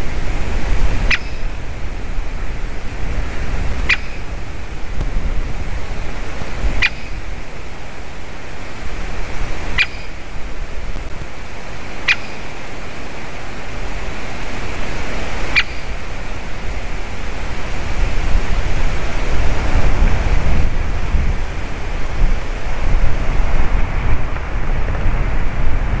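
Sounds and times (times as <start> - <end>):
sharp bird calls: 0.0 - 4.7, 6.6 - 7.6, 9.5 - 10.4, 11.8 - 17.0
wind buffeting microphone: 0.0 - 26.0.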